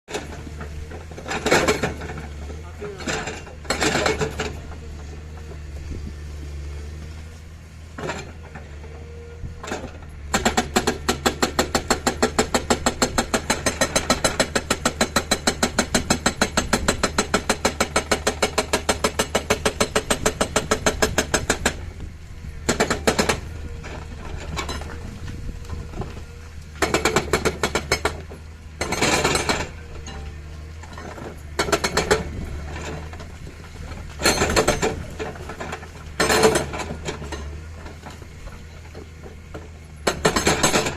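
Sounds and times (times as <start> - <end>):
diesel engine humming: 0.1 - 40.9
hydraulic breaker hammering: 9.8 - 22.0, 22.6 - 26.2, 26.8 - 33.3, 34.0 - 38.2, 39.3 - 40.9.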